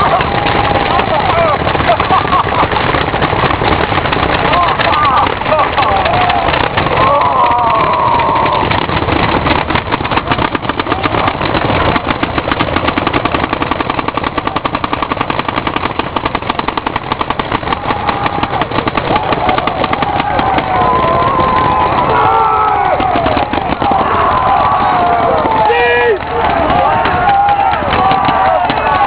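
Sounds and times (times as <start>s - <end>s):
paintball markers firing rapidly: 0.0s - 29.0s
faint shouting: 4.5s - 8.7s, 17.8s - 29.0s.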